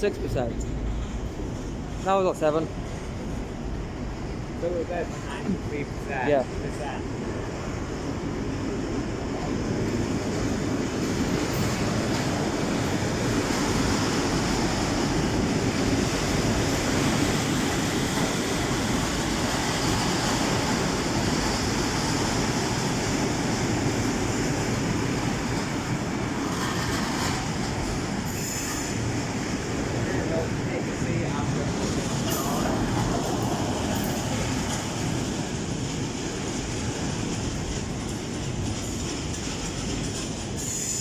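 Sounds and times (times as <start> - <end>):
train rumbling: 0.0 - 41.0.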